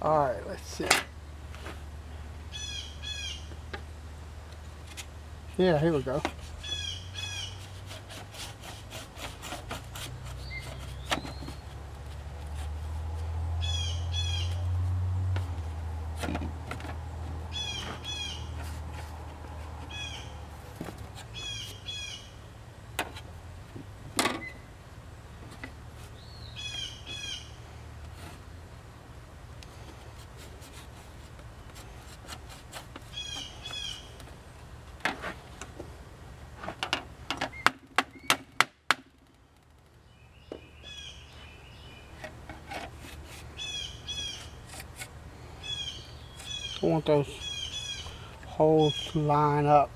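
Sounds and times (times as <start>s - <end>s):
songbird chirping: 2.1s - 5.0s, 5.6s - 7.8s, 10.1s - 23.2s, 23.8s - 28.8s, 33.0s - 34.8s, 39.2s - 42.6s, 43.2s - 44.8s, 45.4s - 49.9s.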